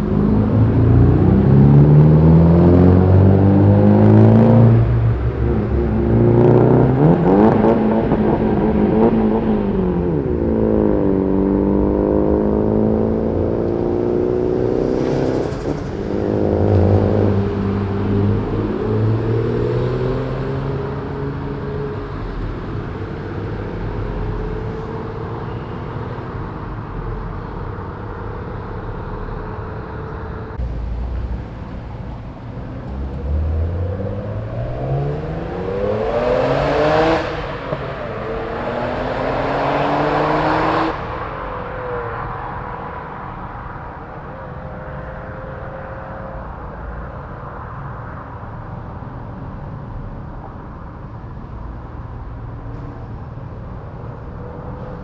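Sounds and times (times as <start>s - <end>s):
car accelerating hard: 0.0s - 22.2s, 30.6s - 42.7s
car engines idling: 26.6s - 35.5s.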